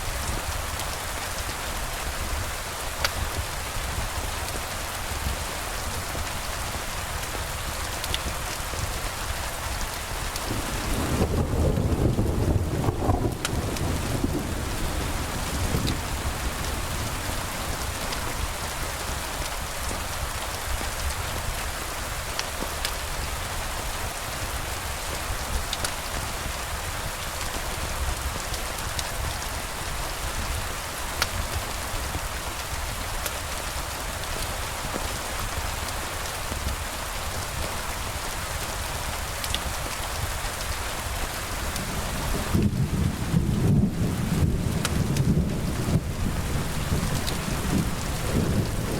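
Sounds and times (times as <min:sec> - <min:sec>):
steady rain falling: 0:00.0 - 0:48.9
low thunder rumble: 0:10.4 - 0:18.8, 0:41.5 - 0:48.9.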